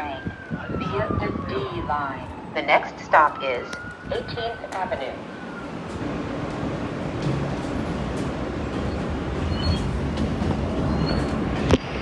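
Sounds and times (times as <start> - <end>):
train wheels rumbling on track: 4.1 - 12.0.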